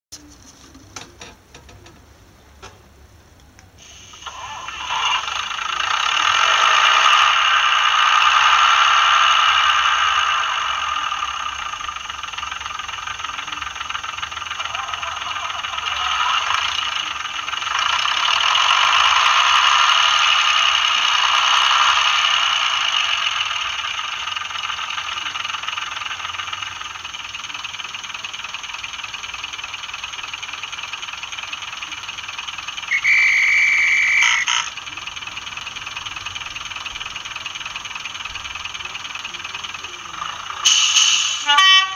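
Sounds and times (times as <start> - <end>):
model train diesel engine sound: 0.1 - 41.9
high steady tone: 32.0 - 41.9.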